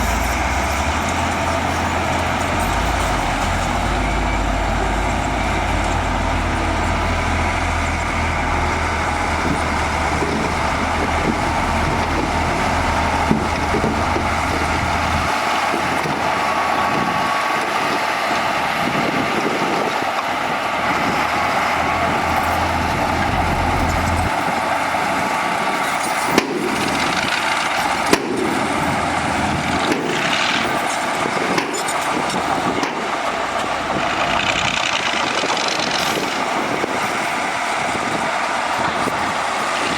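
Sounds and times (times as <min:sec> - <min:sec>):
heavy machinery diesel engine: 0:00.0 - 0:39.9
sharp knocks: 0:28.0 - 0:28.6.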